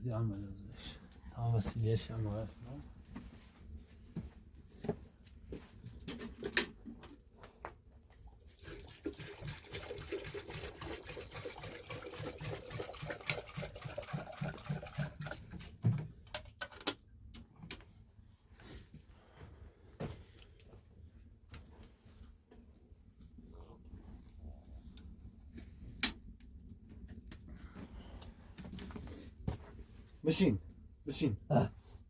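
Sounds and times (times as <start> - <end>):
water pouring and gurgling: 8.3 - 15.9.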